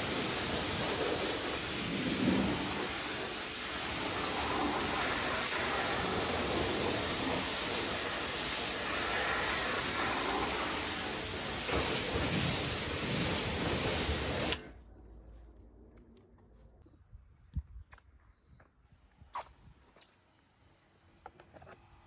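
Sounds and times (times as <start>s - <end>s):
water spraying onto a car: 0.0s - 14.7s.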